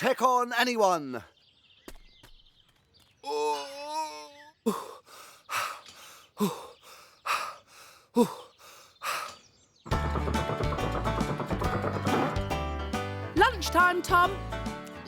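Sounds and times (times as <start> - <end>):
music: 9.9 - 15.0.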